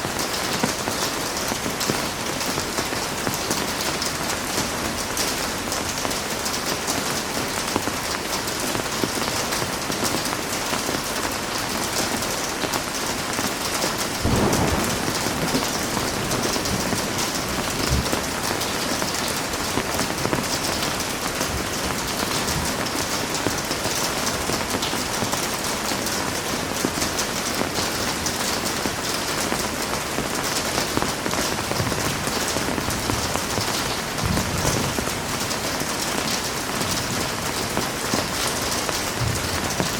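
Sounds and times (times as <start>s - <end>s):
heavy rain falling: 0.0s - 39.9s
thunder rolling: 14.2s - 20.5s, 39.1s - 39.9s.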